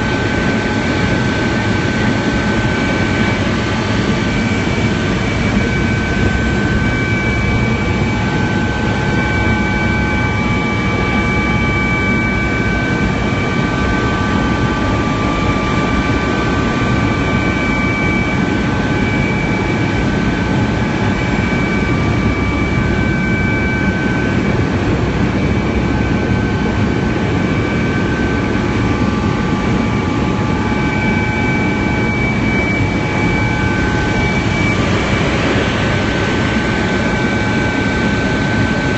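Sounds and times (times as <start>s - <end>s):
helicopter engine and rotor drone: 0.0s - 38.9s
high whine: 0.0s - 38.9s.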